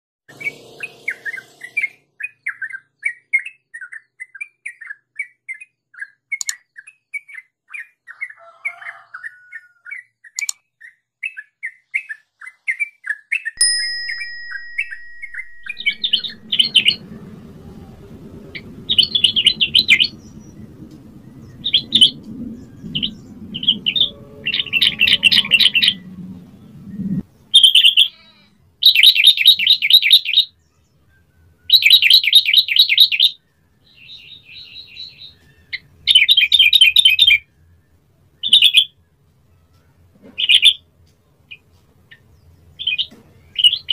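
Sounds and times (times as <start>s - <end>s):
low steady hum: 13.6s - 27.5s
bird singing chirping notes: 13.6s - 39.8s.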